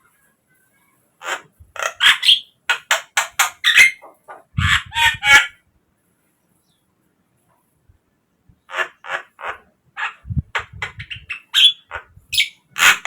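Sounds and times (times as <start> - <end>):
bird harsh chattering calls: 1.2 - 5.5, 8.7 - 13.0.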